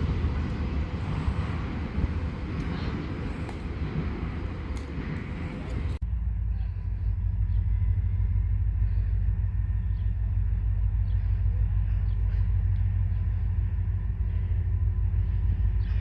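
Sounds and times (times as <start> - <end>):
faint engine tones: 0.0 - 16.0
freight train rumble: 0.0 - 16.0.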